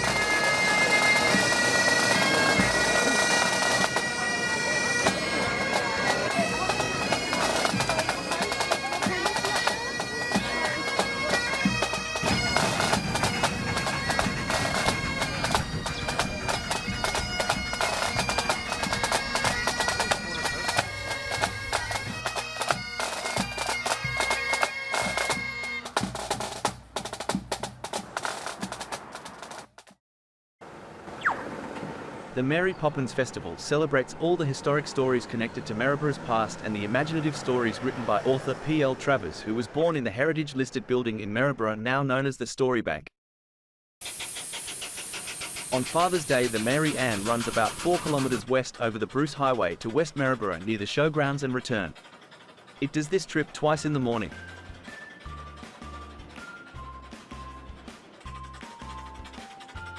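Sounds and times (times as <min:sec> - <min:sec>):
bagpipes playing: 0:00.0 - 0:26.0, 0:44.1 - 0:48.4
drums beating: 0:00.0 - 0:30.0, 0:54.1 - 0:59.9.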